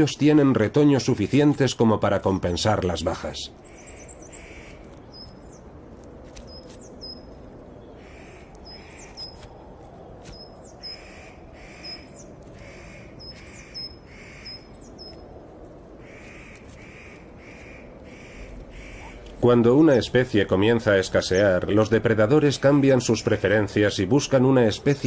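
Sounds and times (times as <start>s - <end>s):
birds harsh calls: 2.2s - 23.4s
high bird chirps: 3.6s - 5.7s, 6.4s - 9.5s, 10.3s - 15.3s.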